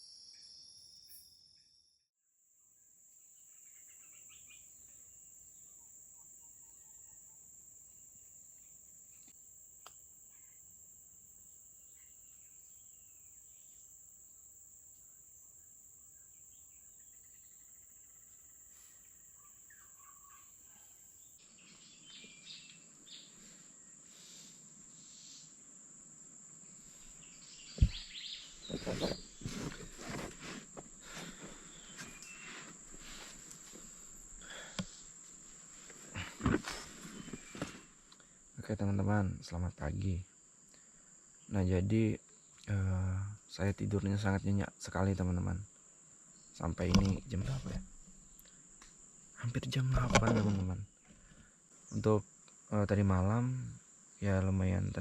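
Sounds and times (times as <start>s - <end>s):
faint bird chirps: 0.0s - 2.1s, 3.4s - 7.6s, 15.6s - 25.6s, 26.7s - 30.2s, 31.3s - 33.3s, 37.0s - 37.8s
crickets droning: 2.4s - 55.0s
rustling and handling noises: 27.8s - 38.1s.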